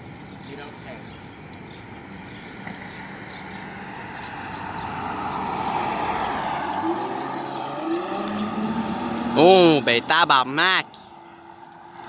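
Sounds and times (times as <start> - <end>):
car engine revving: 3.0 - 12.0.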